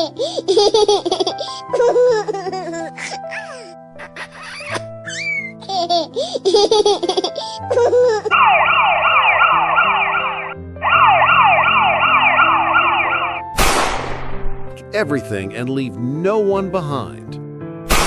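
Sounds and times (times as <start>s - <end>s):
baby giggling: 0.0s - 8.4s
background music: 0.0s - 18.0s
emergency siren: 8.3s - 13.4s.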